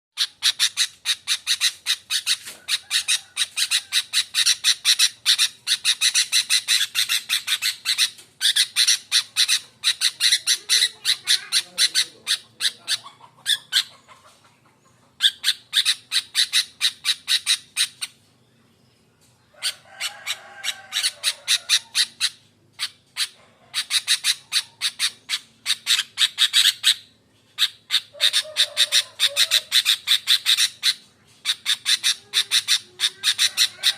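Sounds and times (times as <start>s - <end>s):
bulbul harsh chattering calls: 0.2s - 18.2s, 19.6s - 33.9s.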